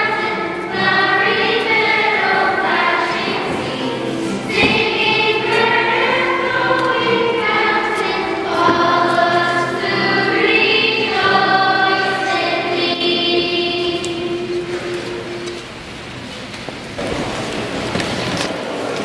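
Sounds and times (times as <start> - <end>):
choir singing a hymn: 0.0 - 15.5.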